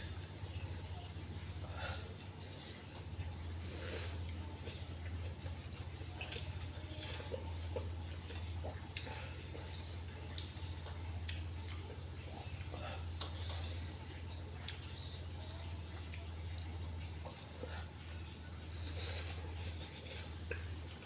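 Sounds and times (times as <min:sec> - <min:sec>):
steady low hum: 0:00.0 - 0:21.0
wet slurping: 0:18.7 - 0:20.7.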